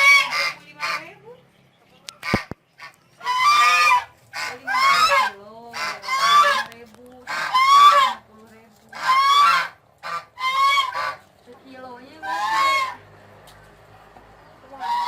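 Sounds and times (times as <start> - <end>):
fowl harsh calls: 0.0 - 1.2, 2.2 - 8.3, 8.9 - 11.3, 12.1 - 13.1, 14.7 - 15.0
fainter lower fowl call: 3.2 - 6.7, 7.3 - 8.2, 9.0 - 11.2, 12.2 - 13.0, 14.8 - 15.0.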